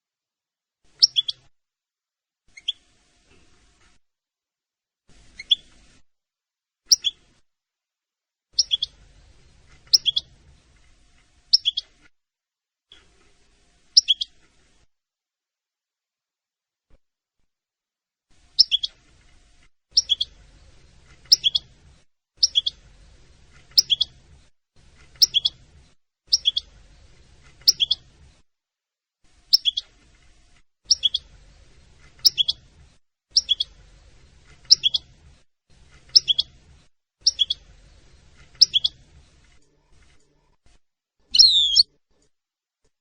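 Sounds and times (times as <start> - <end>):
small bird chirping: 0.9 - 1.5, 2.5 - 2.9, 5.1 - 6.0, 6.9 - 7.3, 8.6 - 9.0, 9.7 - 10.4, 11.5 - 12.0, 13.9 - 14.4, 18.5 - 19.0, 19.9 - 21.8, 22.4 - 22.8, 23.4 - 24.2, 25.0 - 25.7, 26.3 - 26.8, 27.5 - 28.1, 29.5 - 30.0, 30.8 - 31.5, 32.1 - 32.7, 33.3 - 33.8, 34.6 - 35.2, 36.0 - 36.6, 37.2 - 39.1, 41.3 - 41.9.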